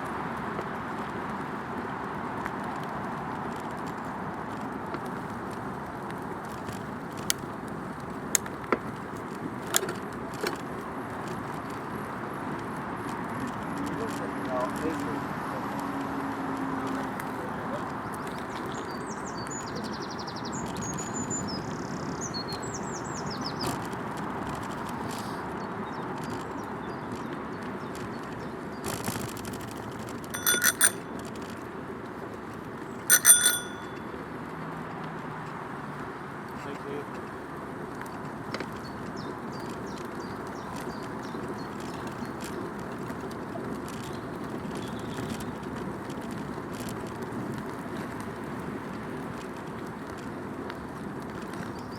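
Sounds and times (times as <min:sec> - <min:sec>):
bicycle tyres rolling on path: 0:00.0 - 0:51.9
bike rattles and clicks: 0:00.0 - 0:51.9
bicycle bell ringing: 0:30.3 - 0:31.3, 0:33.1 - 0:34.2.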